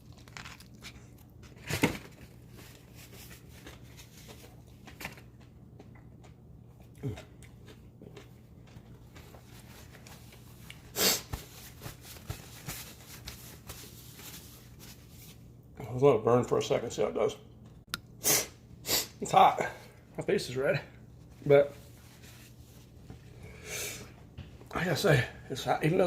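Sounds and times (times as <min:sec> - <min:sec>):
crunch of biting chicken: 0:00.0 - 0:01.3.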